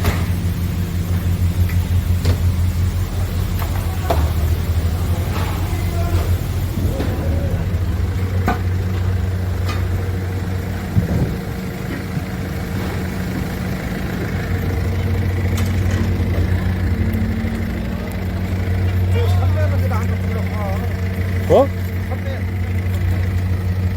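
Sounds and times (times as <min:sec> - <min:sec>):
low mechanical hum: 0:00.0 - 0:23.9.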